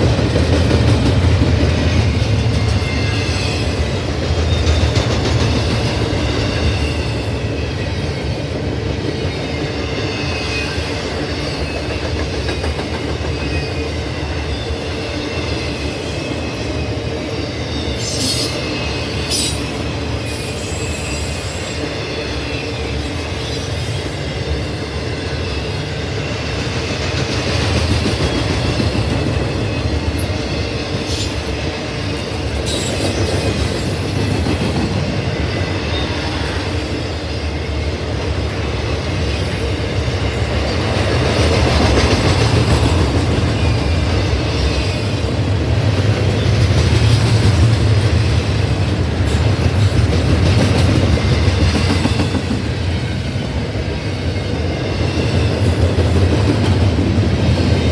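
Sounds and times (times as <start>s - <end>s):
train wheels rumbling on rails: 0.0s - 57.9s
high wheel squeal: 13.3s - 25.8s.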